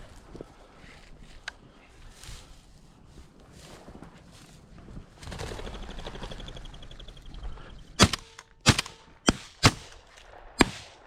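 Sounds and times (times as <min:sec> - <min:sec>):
shotgun shots: 0:08.0 - 0:11.0.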